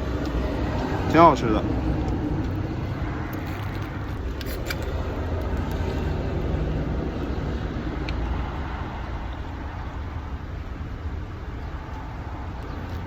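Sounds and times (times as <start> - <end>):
low rumbling noise: 0.0 - 13.0.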